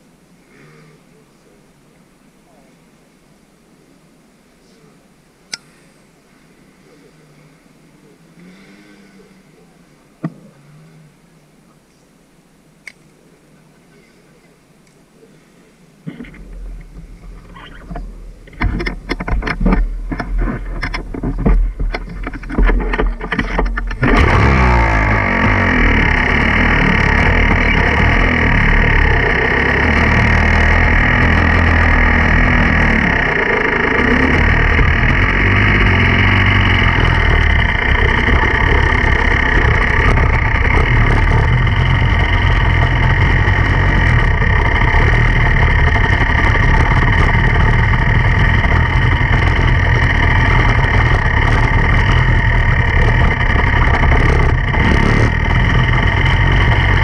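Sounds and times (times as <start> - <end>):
dirt bike engine revving: 16.1 - 57.0.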